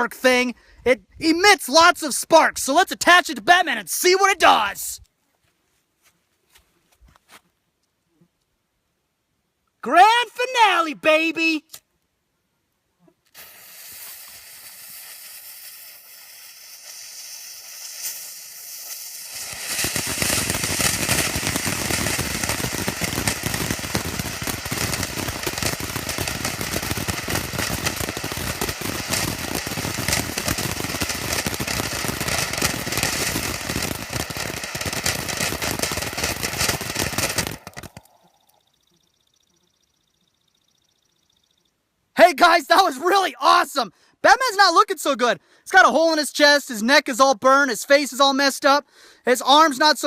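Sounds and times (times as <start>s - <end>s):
fountain firework crackling: 13.3s - 38.8s.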